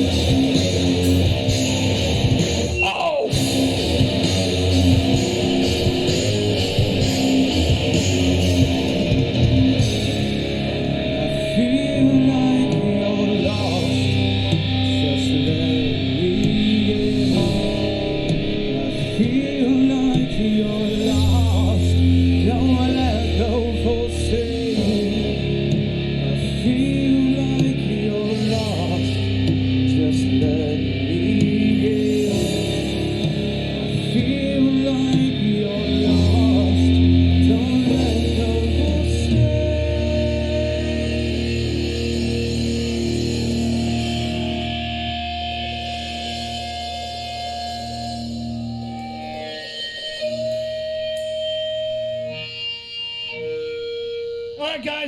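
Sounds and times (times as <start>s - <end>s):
electric guitar: 0.0s - 55.0s
sustained bass notes: 0.0s - 55.0s
person singing: 11.2s - 42.8s.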